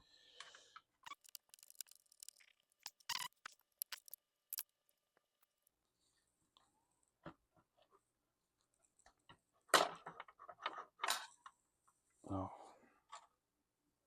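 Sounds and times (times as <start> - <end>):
laptop parts clicking and tapping: 1.0 - 4.6.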